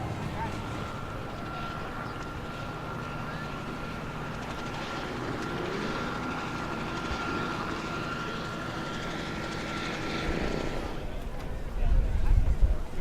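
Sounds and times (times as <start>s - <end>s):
aircraft engine whine: 0.0s - 13.0s.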